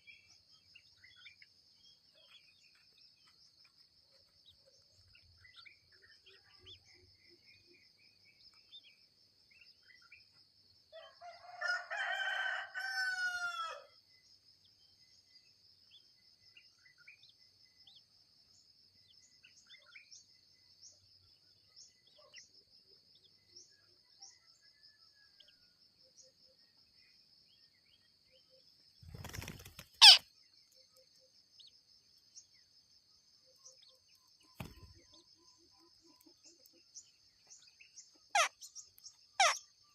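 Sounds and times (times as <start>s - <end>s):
rooster crowing: 11.0s - 13.9s.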